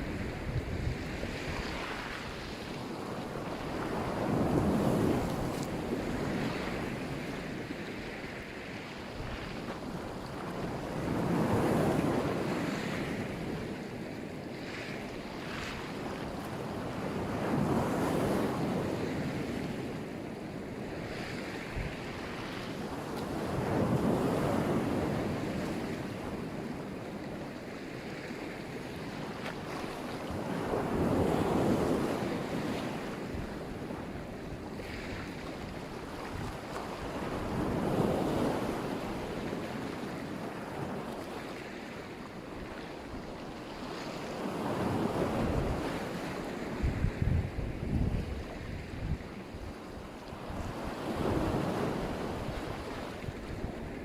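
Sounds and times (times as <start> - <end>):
wind buffeting microphone: 0.0 - 7.6, 44.3 - 54.0
waves breaking on shore: 0.0 - 54.0.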